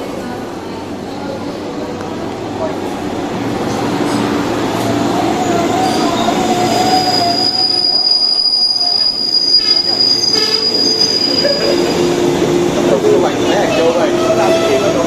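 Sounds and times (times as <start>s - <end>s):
rumble of train wheels: 0.0s - 15.0s
train wheels squealing on rail: 5.3s - 12.4s, 13.3s - 15.0s.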